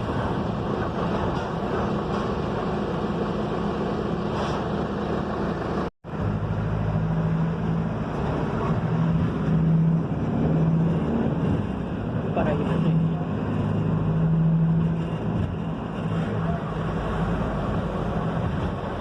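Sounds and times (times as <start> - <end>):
bus engine hum: 0.0 - 19.0
road noise: 0.0 - 19.0.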